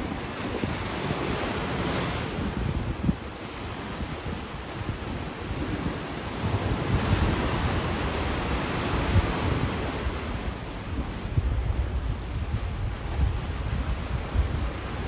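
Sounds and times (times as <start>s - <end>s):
sea waves breaking on beach: 0.0s - 15.0s
wind buffeting microphone: 0.0s - 15.0s.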